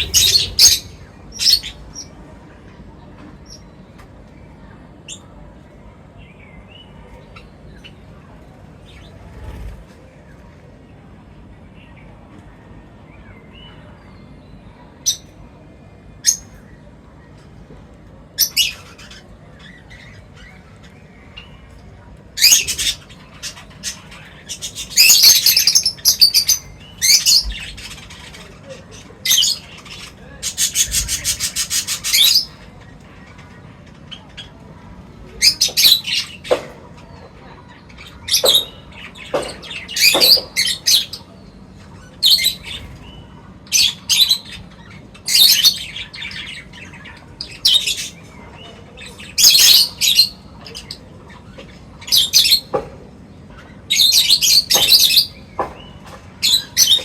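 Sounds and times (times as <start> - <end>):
rapid even rattle: 0.0 - 1.1
short bird calls: 0.0 - 1.8
birds chirping: 0.0 - 57.0
low background noise: 0.0 - 57.0.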